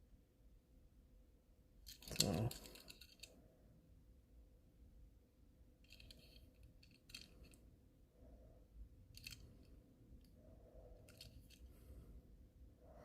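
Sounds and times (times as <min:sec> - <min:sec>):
faint steady hum: 0:00.0 - 0:13.0
toy truck clicking and rattling: 0:01.9 - 0:03.4, 0:05.8 - 0:07.6, 0:09.1 - 0:09.6, 0:11.0 - 0:11.7.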